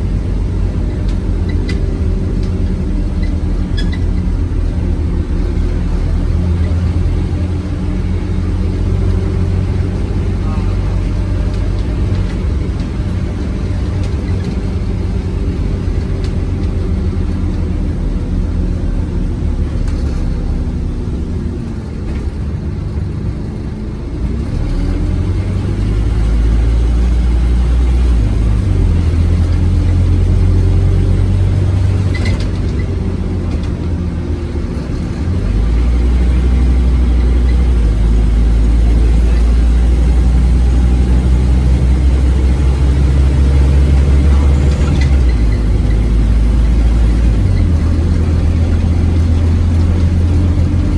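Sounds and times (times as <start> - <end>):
bus engine running under load: 0.0 - 50.9.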